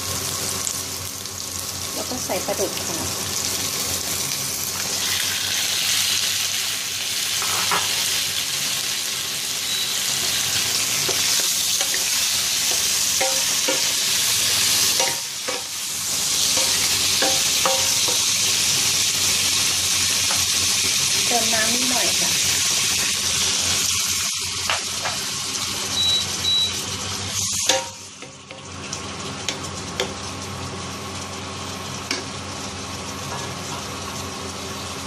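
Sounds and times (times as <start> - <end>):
fish sizzling in hot oil: 0.0 - 35.0.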